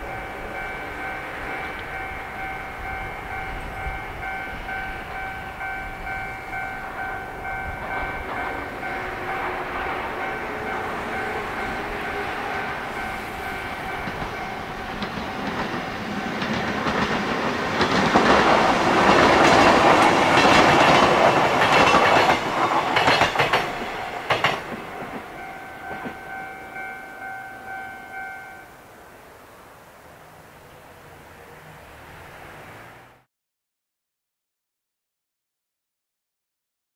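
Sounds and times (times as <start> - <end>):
wheels clacking over rail joints: 0.0 - 27.8
electric train running past: 0.0 - 33.3
level crossing bell ringing: 10.2 - 15.5, 25.3 - 28.8.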